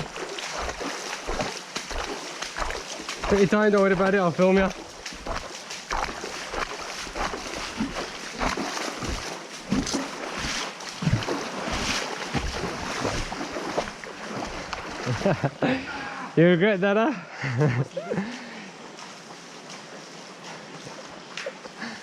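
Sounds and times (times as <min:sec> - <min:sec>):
water splashing from wading: 0:00.0 - 0:16.0.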